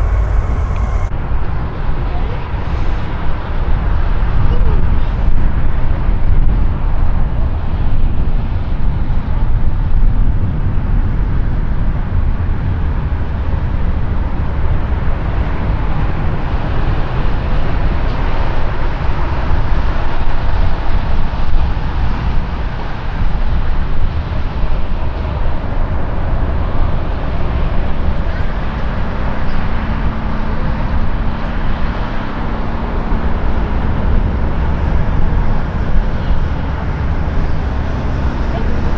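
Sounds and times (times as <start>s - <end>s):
jet engines rumbling: 0.0s - 4.0s, 26.3s - 38.9s.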